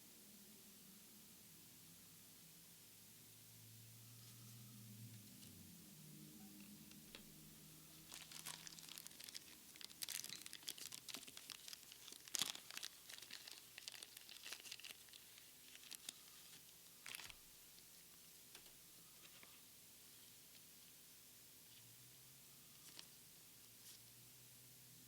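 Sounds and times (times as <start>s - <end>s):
foil ripping: 8.0s - 17.4s
foil pack crinkling: 8.0s - 17.5s.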